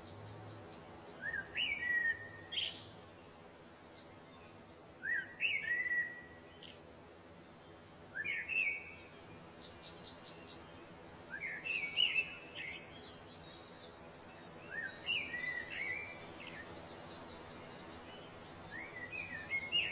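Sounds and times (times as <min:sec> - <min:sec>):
faint background hiss: 0:00.0 - 0:19.9
bird high chirps: 0:05.0 - 0:06.8.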